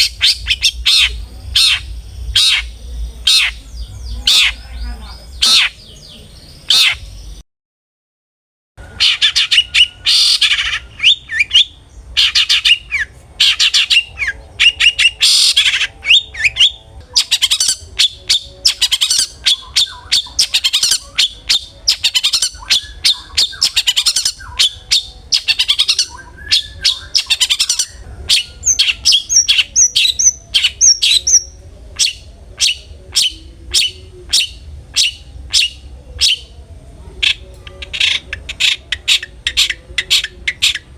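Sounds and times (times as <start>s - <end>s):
bird chattering calls: 0.0s - 7.2s, 8.9s - 36.5s, 37.2s - 40.9s.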